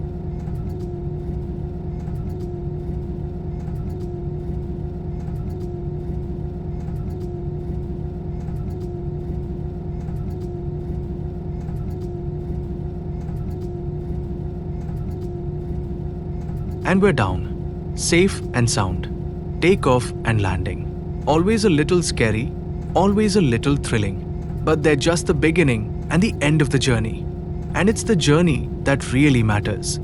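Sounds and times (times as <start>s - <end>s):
constant hum: 0.0s - 30.0s
airplane cabin engine rumble: 16.9s - 30.0s.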